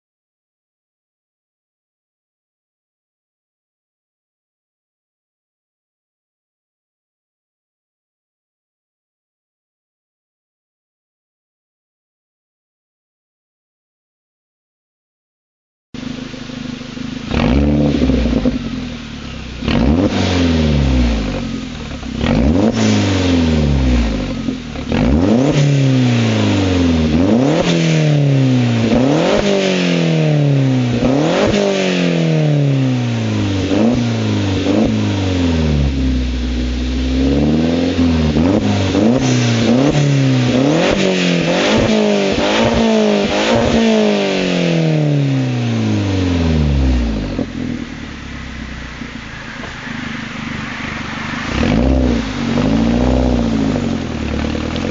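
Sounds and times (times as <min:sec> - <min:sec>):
car engine revving: 0:16.0 - 0:54.9.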